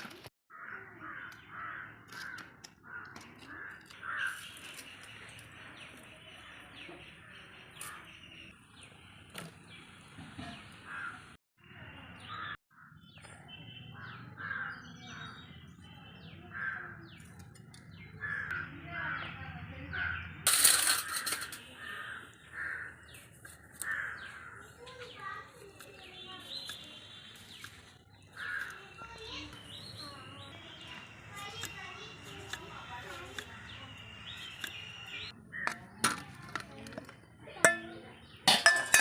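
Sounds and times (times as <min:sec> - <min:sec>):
crows cawing: 0:00.5 - 0:04.6, 0:10.9 - 0:11.3, 0:14.0 - 0:14.9, 0:16.5 - 0:17.1, 0:18.2 - 0:19.2, 0:21.0 - 0:25.4, 0:27.5 - 0:29.4.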